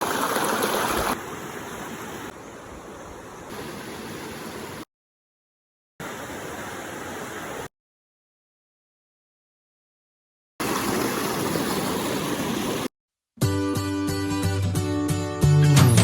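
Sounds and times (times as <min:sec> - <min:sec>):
river water rushing: 0:00.0 - 0:04.8, 0:06.0 - 0:07.7, 0:10.6 - 0:12.9.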